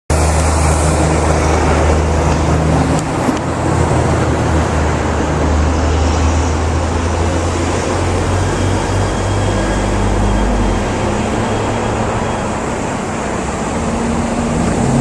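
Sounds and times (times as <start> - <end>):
continuous rushing noise: 0.1 - 15.0
vehicle engines humming: 0.1 - 15.0.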